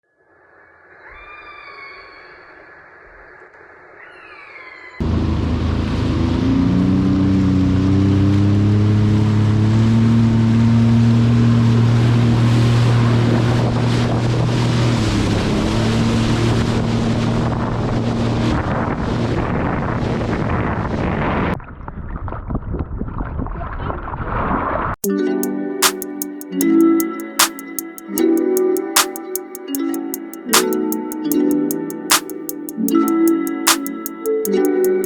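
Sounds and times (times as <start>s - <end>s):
jet ski engine drone: 5.0s - 18.4s.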